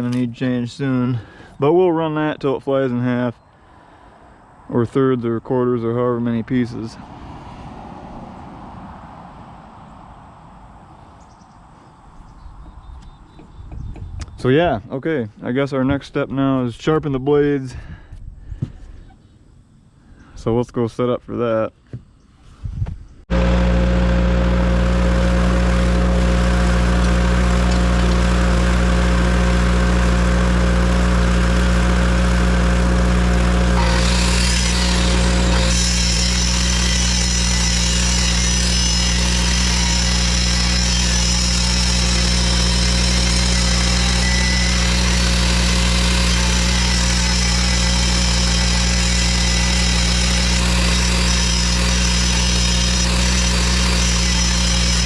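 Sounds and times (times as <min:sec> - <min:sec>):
engine idling: 0:23.3 - 0:55.0
high-pitched whine: 0:33.8 - 0:55.0.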